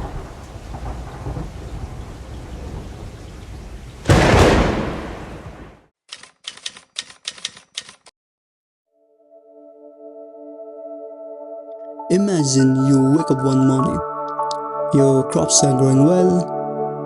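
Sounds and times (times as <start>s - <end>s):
rain: 0.0s - 5.8s
thunderclap: 0.0s - 5.9s
typewriter-like key clicks: 6.1s - 8.1s
ambient music chord: 9.0s - 17.0s.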